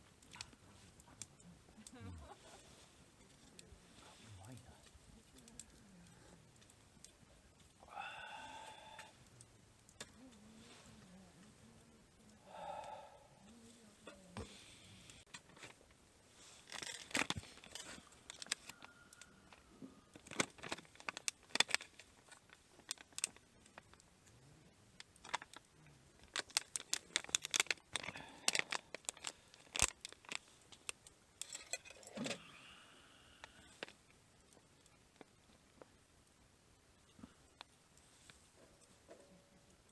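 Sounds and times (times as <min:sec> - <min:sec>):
small objects clicking and clinking: 0:20.1 - 0:24.0, 0:25.1 - 0:32.3.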